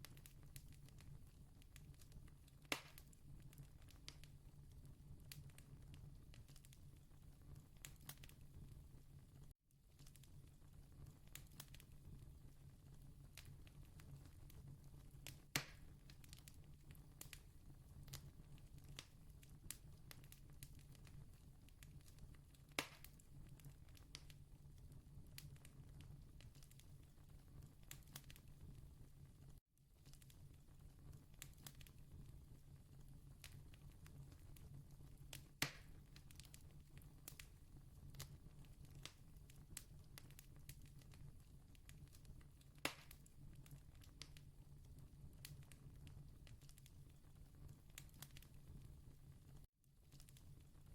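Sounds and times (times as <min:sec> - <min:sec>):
campfire crackling: 0:00.0 - 0:04.4, 0:10.0 - 0:11.9, 0:12.6 - 0:24.4, 0:33.4 - 0:44.5, 0:45.4 - 0:49.0.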